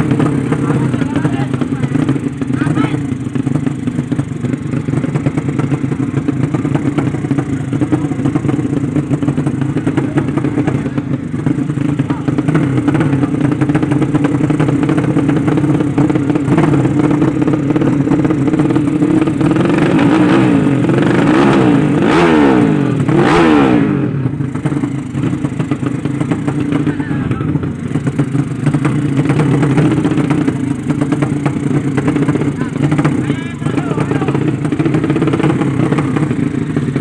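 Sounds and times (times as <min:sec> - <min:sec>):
motorcycle engines revving hard: 0:00.0 - 0:37.0
steady engine drone: 0:00.0 - 0:37.0.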